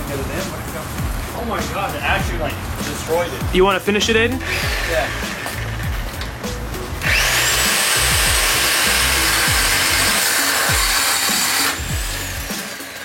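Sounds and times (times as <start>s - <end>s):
angle grinder cutting metal pipe: 4.4s - 13.0s.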